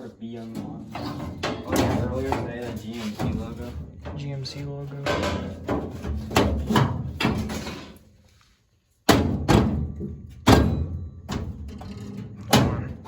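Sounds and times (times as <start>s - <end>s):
hard parts knocking: 0.5s - 8.0s.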